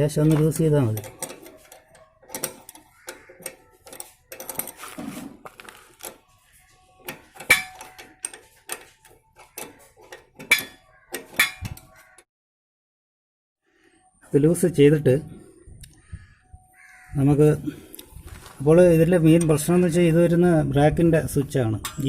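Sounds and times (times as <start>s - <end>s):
spanner clicking and scraping metal: 0.0s - 12.2s, 21.8s - 22.0s
sharp metal knocks: 7.4s - 8.3s, 9.5s - 11.9s.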